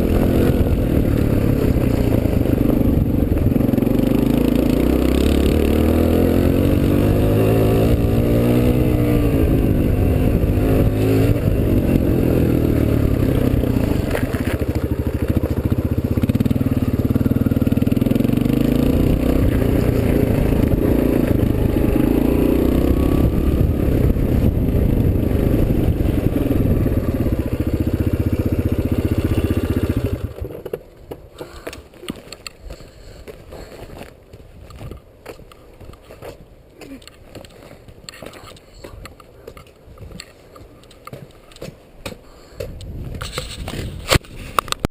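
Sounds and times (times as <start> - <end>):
dirt bike engine: 0.0 - 31.7.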